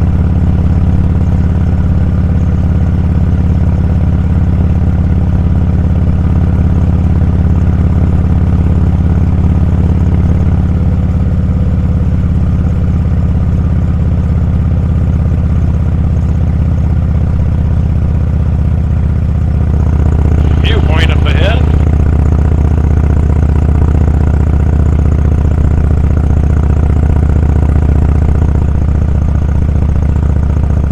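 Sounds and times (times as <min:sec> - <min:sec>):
motorcycle engine droning: 0:19.0 - 0:27.1.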